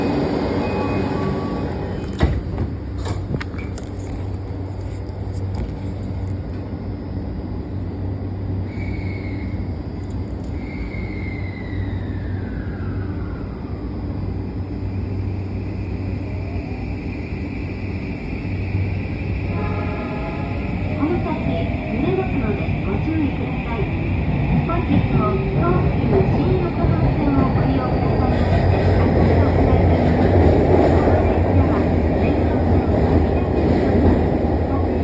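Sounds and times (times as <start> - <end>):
train running rumble and hum: 0.0 - 35.0.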